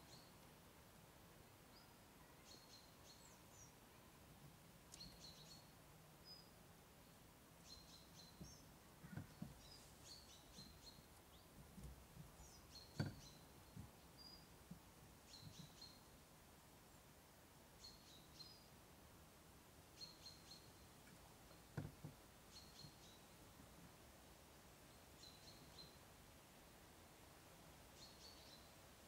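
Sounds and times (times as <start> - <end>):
faint songbirds chirping: 0.0 - 29.0
soft low thuds: 8.3 - 15.7.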